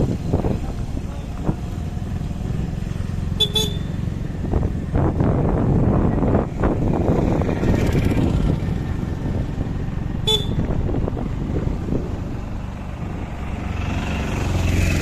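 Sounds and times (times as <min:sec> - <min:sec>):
motorcycle engine rumble: 0:00.0 - 0:15.0.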